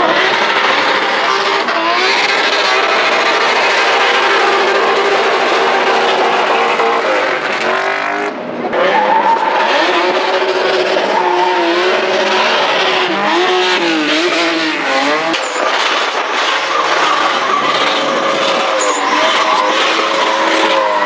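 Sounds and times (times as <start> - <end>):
car engine at high revs: 0.0 - 21.0
tyres screeching: 11.0 - 21.0.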